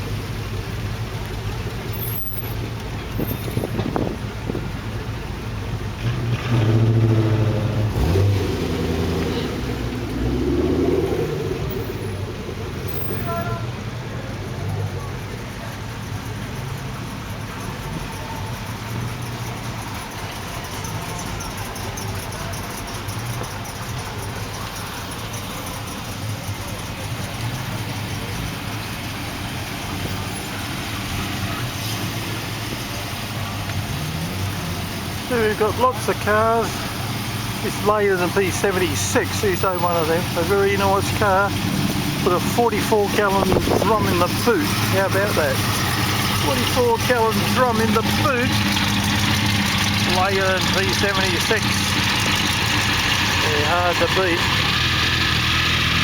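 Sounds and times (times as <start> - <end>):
car engine revving driving past: 5.8 - 15.2, 27.3 - 56.0.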